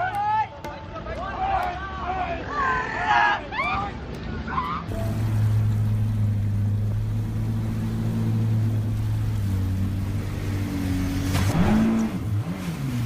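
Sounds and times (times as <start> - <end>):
boat motor humming: 4.9 - 13.0.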